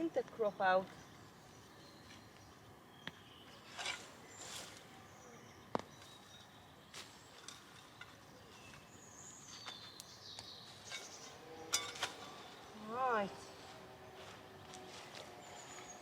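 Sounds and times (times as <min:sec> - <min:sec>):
faint high bird chirps: 0:00.4 - 0:13.2
knocks and scrapes of digging soil: 0:03.6 - 0:04.9, 0:06.9 - 0:13.1.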